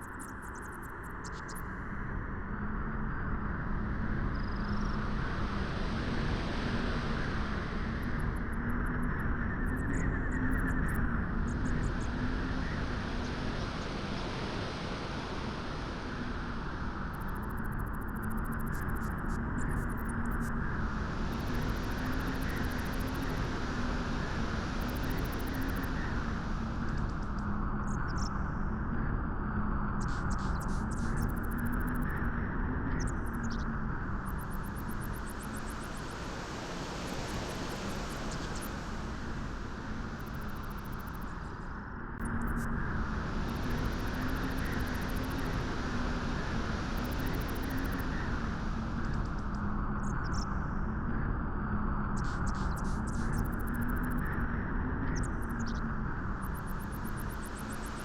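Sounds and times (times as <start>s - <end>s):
steady wind rushing: 33.9s - 50.9s.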